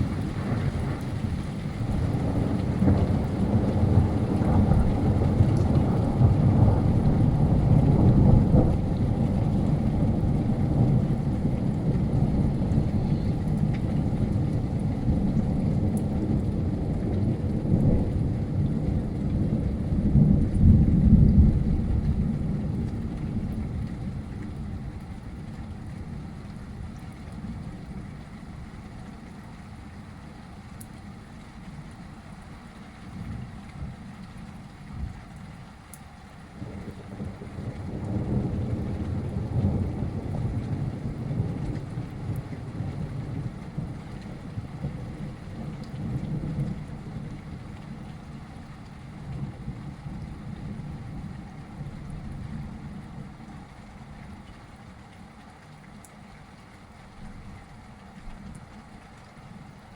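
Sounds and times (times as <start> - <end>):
rolling thunder: 0.0 - 28.7, 36.6 - 53.5
steady rain: 0.0 - 59.9.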